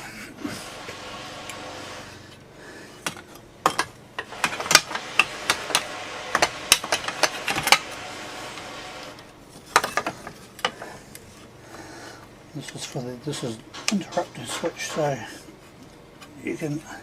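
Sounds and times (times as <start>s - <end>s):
clicks and knocks of chainsaw parts: 3.0s - 7.9s, 9.6s - 11.3s.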